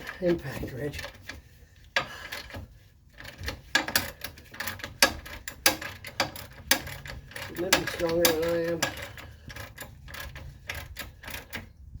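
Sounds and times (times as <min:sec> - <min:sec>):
metallic tool clicks and clanks: 0:03.2 - 0:11.7.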